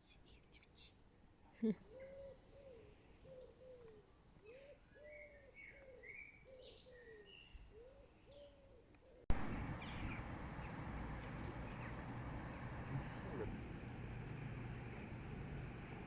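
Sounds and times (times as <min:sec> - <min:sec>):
bird cooing: 0:01.7 - 0:10.7
small birds chirping: 0:01.7 - 0:13.5.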